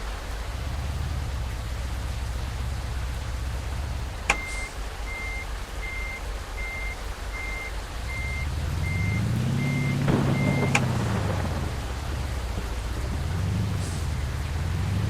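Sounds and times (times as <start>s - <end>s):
low engine hum: 0.0s - 15.0s
truck reversing alarm beeping: 4.3s - 11.5s.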